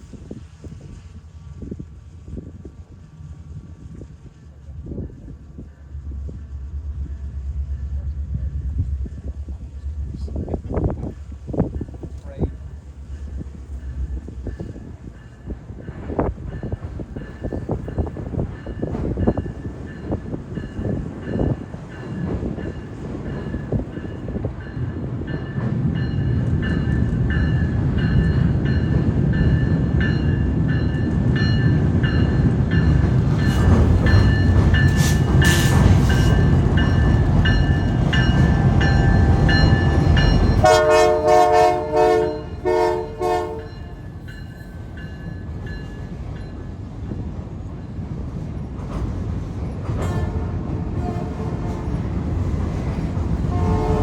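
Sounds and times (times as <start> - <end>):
train rolling rumble: 0.0 - 54.0
locomotive horn blasts: 40.6 - 44.0, 50.0 - 51.9, 53.5 - 54.0.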